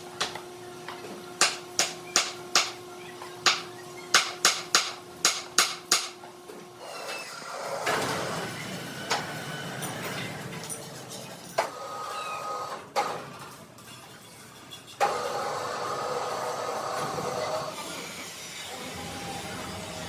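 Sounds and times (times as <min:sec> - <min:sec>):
machine running with steady tone: 0:15.0 - 0:20.0.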